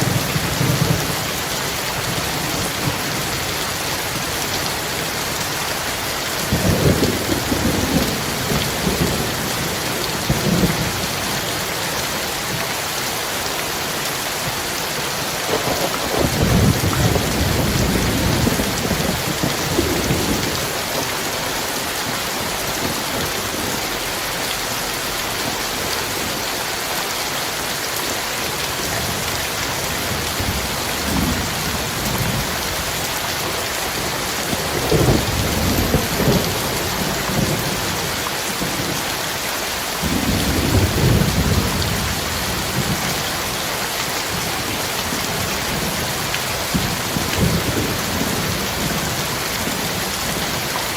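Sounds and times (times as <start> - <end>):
heavy rain: 0.0 - 50.9
rolling thunder: 15.4 - 20.7, 33.9 - 39.0, 40.0 - 43.5.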